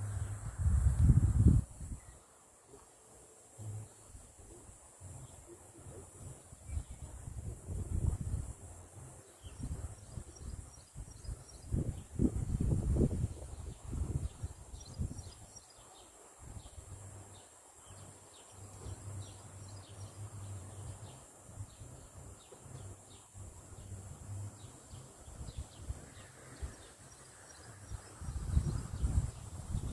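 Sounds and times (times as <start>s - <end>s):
small birds chirping: 9.2s - 12.5s.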